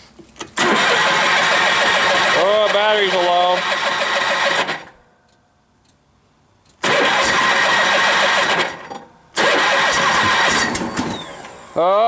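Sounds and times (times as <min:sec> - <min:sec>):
engine cranking by electric starter: 0:00.6 - 0:05.0, 0:06.8 - 0:11.8.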